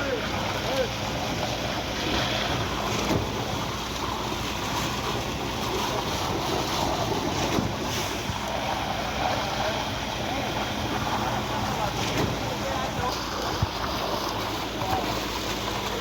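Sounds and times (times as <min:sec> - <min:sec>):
concrete pump engine drone: 0:00.0 - 0:16.0.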